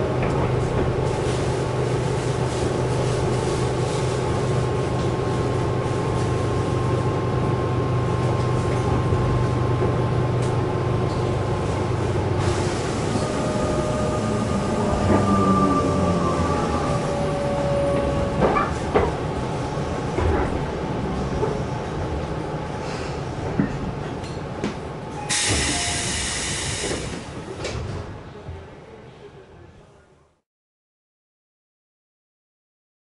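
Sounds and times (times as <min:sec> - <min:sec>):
train equipment hum: 0:00.0 - 0:29.8.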